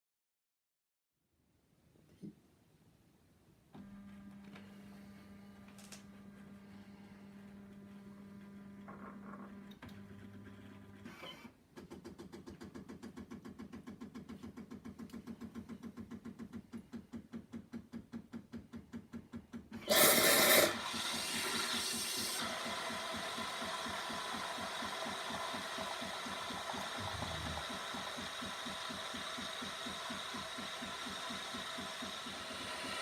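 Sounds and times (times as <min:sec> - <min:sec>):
espresso machine humming: 0:19.9 - 0:33.0
loud steam hissing: 0:19.9 - 0:33.0
rhythmic mechanical pulsing: 0:22.4 - 0:33.0.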